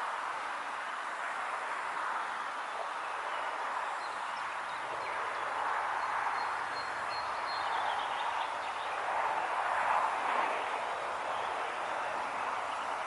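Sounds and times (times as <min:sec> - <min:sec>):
wind rushing through foliage: 0:00.0 - 0:13.0.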